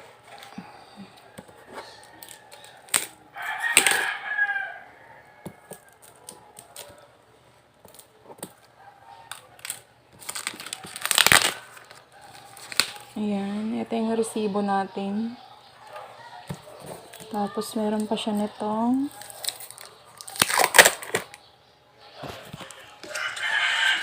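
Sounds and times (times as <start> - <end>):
rooster crowing: 0.3 - 7.2, 8.7 - 9.9, 10.5 - 13.2, 14.8 - 17.8, 22.8 - 24.0
package crinkling: 9.3 - 13.2, 16.9 - 21.4
packaging clicks and rustles: 9.3 - 13.2, 16.5 - 21.4.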